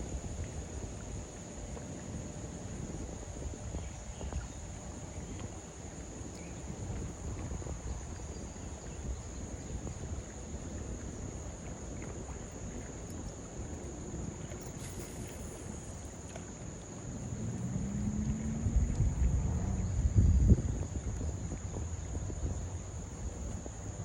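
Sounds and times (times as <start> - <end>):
insects droning: 0.0 - 24.0
low rumble: 14.4 - 24.0.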